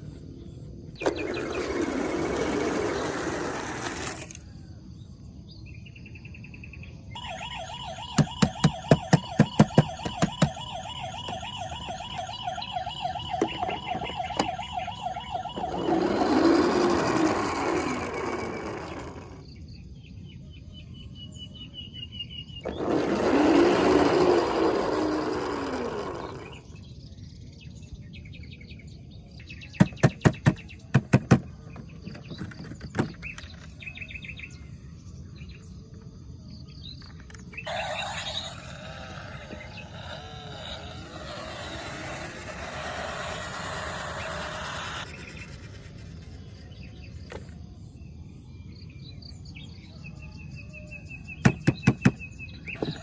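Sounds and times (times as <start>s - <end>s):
electronic toy siren: 7.2s - 19.4s, 22.6s - 26.8s, 37.6s - 46.5s, 52.8s - 53.0s.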